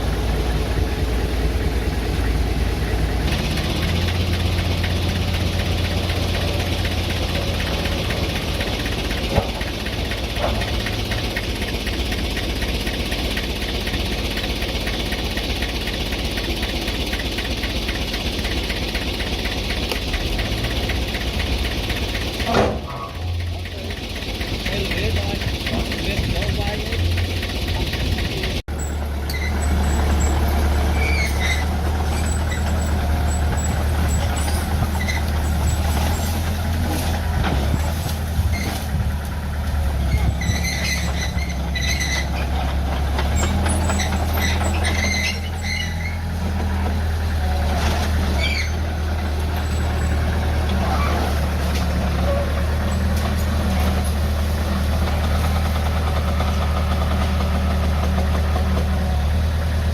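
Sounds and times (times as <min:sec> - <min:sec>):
heavy diesel engine running: 0:00.0 - 0:59.9
short high-pitched squeals: 0:40.3 - 0:42.4, 0:43.4 - 0:46.4.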